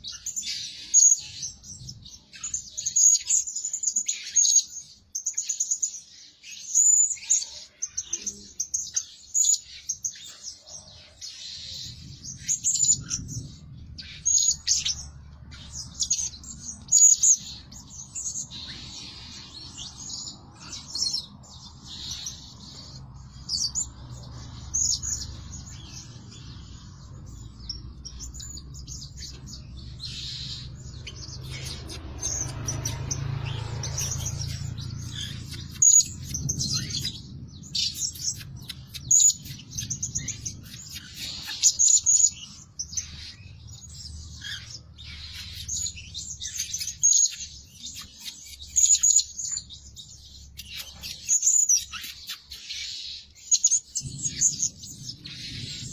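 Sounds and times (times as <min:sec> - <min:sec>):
parrot chirping: 0:11.6 - 0:55.9.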